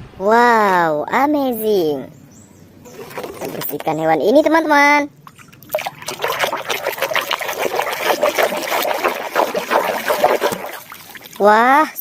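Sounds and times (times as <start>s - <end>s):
water splashing and trickling: 2.9s - 4.2s, 5.2s - 12.0s.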